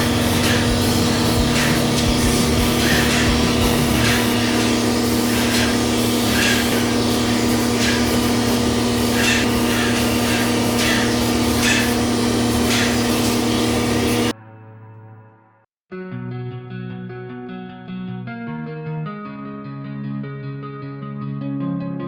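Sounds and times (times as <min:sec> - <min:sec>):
mechanical hum: 0:00.0 - 0:14.3
paint spray gun hissing: 0:00.0 - 0:14.3.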